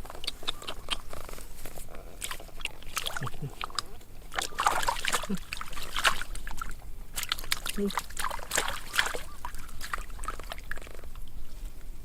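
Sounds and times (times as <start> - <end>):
water splashing and sloshing: 2.1 - 11.4.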